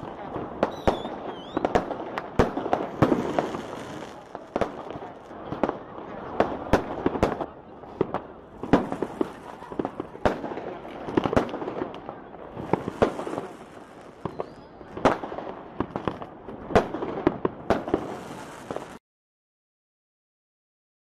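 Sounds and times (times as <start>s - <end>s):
fireworks din: 0.0s - 19.0s.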